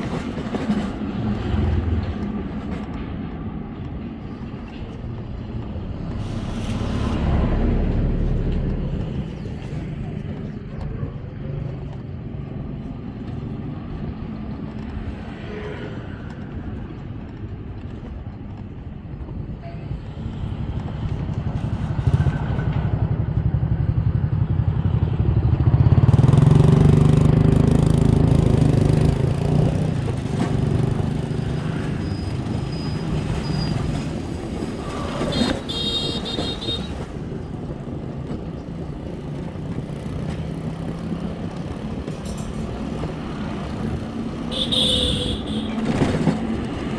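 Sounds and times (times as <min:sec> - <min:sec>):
road traffic: 0:00.0 - 0:46.9
motorbike engine: 0:20.4 - 0:46.9.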